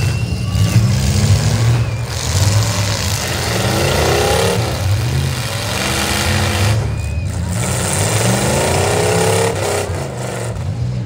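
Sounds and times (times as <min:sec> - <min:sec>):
car engines rumbling: 0:00.0 - 0:11.0
engine revving up: 0:00.0 - 0:11.0.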